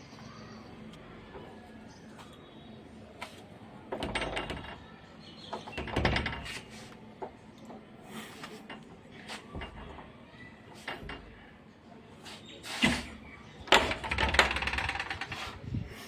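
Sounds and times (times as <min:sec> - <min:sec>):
door knocks and clatter: 0:03.9 - 0:04.8, 0:05.6 - 0:06.6, 0:13.6 - 0:15.5.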